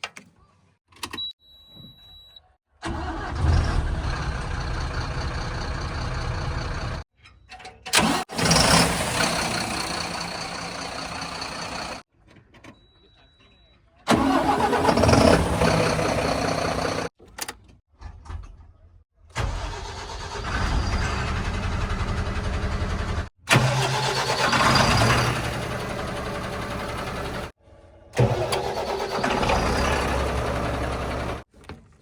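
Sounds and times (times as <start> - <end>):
heavy diesel engines running: 2.8 - 7.0, 8.0 - 12.0, 14.1 - 17.1, 19.5 - 27.5, 28.2 - 31.4.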